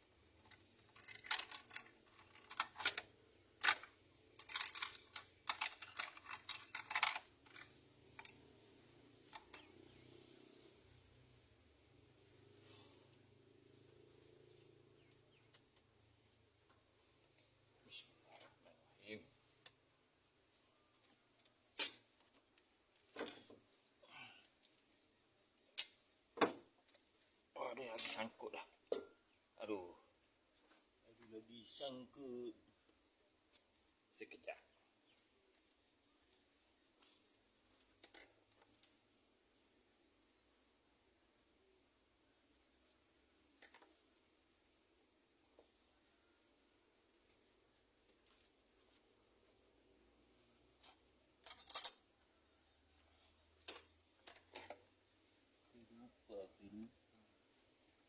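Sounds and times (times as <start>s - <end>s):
hand tools and metal parts clinking: 0.1s - 18.6s, 20.5s - 29.5s, 35.5s - 39.2s, 47.0s - 55.7s.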